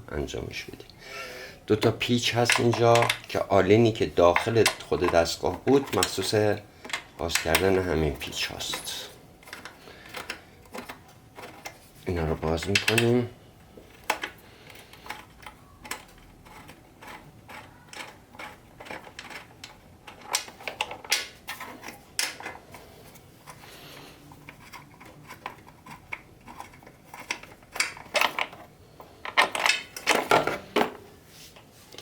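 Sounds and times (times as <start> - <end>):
allen key turning screws: 2.0 - 13.3, 13.9 - 22.8, 24.3 - 30.6
metal-on-metal clicks: 2.4 - 3.4, 4.3 - 11.7, 12.6 - 13.2.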